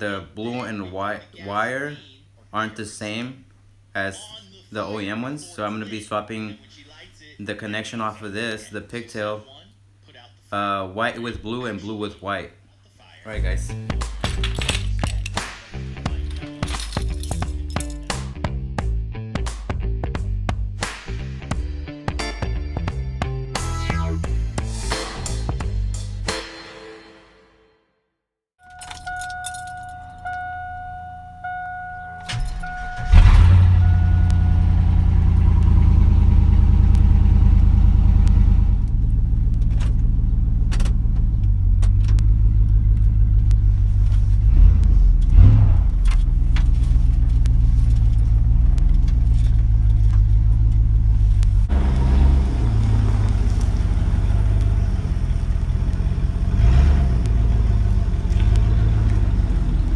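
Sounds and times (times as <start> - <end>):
warning chime dinging: 28.6 - 35.4
truck engine cranking and idling: 28.6 - 59.9
engine revving: 32.6 - 59.9.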